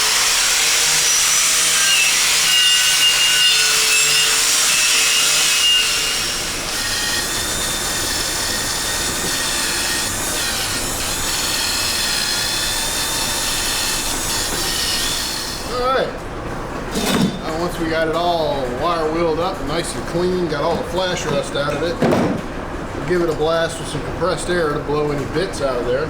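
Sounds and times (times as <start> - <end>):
power tool motor whine: 0.0 - 15.7.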